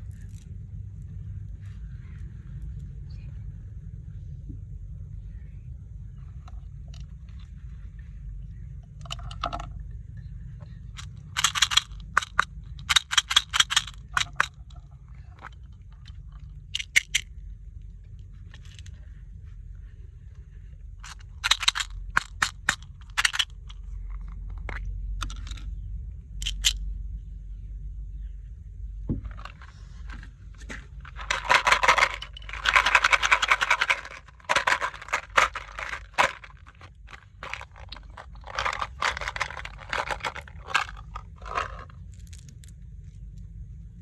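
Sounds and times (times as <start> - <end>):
steady low hum: 0.0 - 44.0
crackling and crunching clicks: 11.0 - 14.8, 21.0 - 23.7, 30.6 - 42.7.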